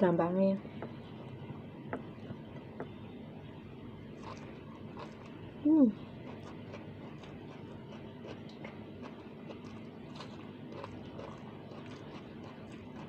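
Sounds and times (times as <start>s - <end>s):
person chewing food: 4.0s - 13.0s.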